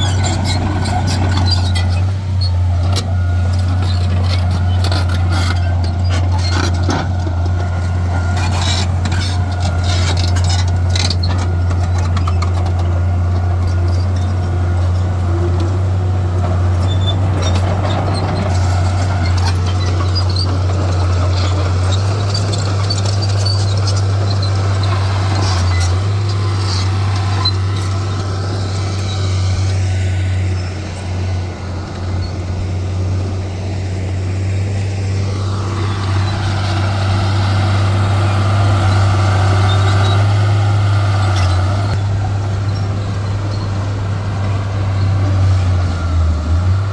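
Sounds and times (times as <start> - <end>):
diesel machinery engine drone: 0.0 - 46.9.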